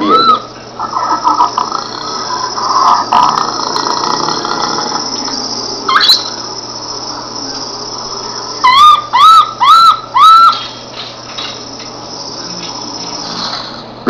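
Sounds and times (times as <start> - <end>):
animal whistled calls: 0.0 - 10.9
high-pitched background drone: 0.0 - 14.0.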